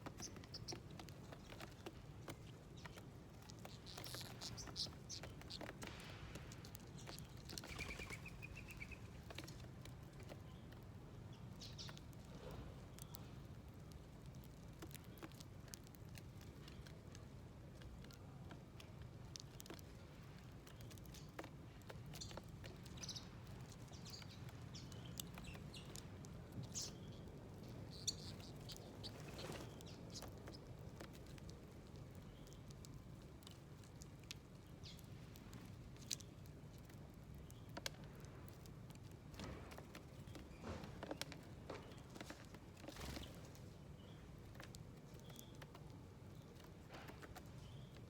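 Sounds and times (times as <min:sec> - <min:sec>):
small birds chirping: 0:00.0 - 0:48.0
light clicks and taps: 0:29.8 - 0:48.0.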